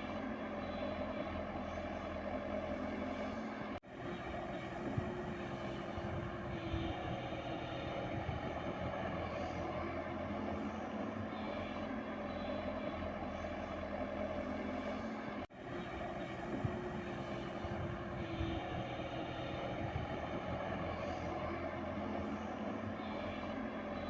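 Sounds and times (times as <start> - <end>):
excavator diesel engine running: 3.9 - 10.4, 15.5 - 24.0.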